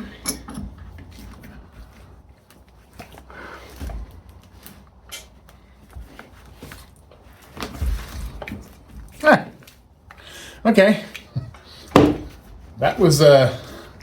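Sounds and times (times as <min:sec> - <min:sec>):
knocks and clicks of tools: 0:11.9 - 0:12.4.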